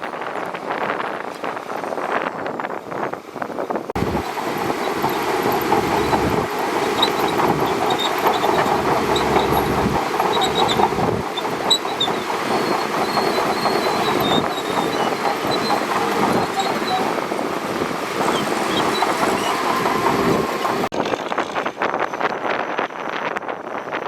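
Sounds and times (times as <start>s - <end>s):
bulldozer engine running: 4.0s - 20.9s
steel tracks clattering: 4.0s - 23.1s.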